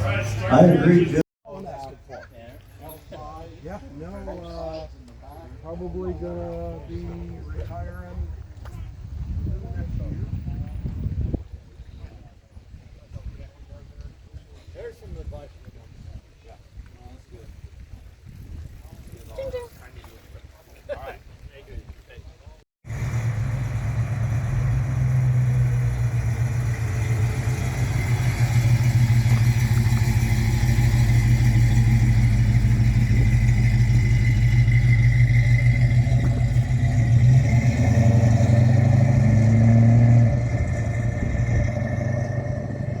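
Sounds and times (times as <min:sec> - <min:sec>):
car engine running: 0:22.9 - 0:43.0.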